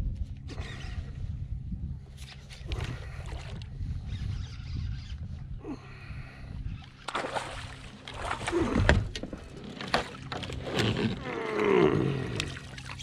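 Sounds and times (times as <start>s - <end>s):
fish splashing in water: 7.0s - 9.1s, 12.4s - 13.0s.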